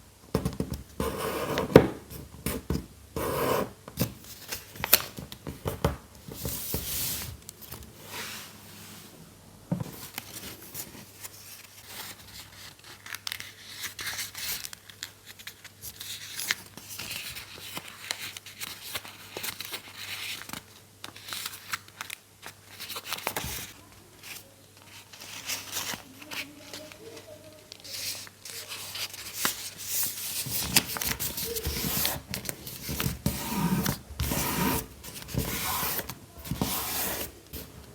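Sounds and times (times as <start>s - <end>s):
paper rustling and crinkling: 9.8s - 37.9s.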